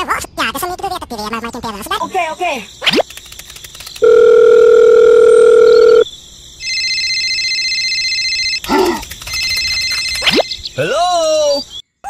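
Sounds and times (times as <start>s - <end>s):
electronic phone ringing: 4.0s - 6.0s, 6.6s - 8.6s, 9.3s - 10.5s
telephone dial tone: 4.0s - 6.0s.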